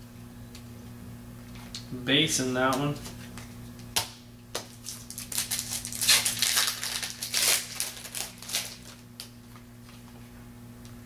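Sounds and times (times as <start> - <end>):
wrapper tearing and crinkling: 4.7 - 9.3.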